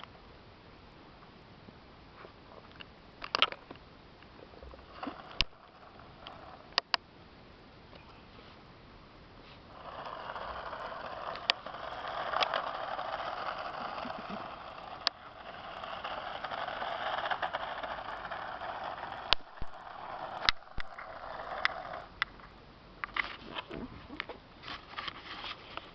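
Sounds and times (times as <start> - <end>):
toy car motor whirring: 4.8 - 7.0, 9.6 - 22.3.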